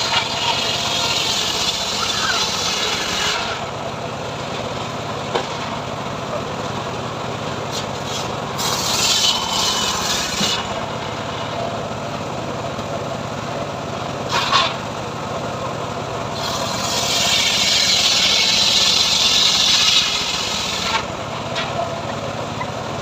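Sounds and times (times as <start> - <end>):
saw cutting through wood: 0.0 - 3.8, 7.7 - 11.6, 14.3 - 14.8, 16.3 - 22.2
sawmill engine running: 0.0 - 23.0.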